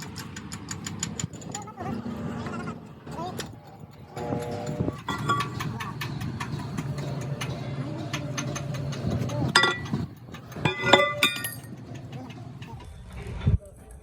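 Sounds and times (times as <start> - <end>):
metal parts clinking and ringing: 3.4 - 12.7.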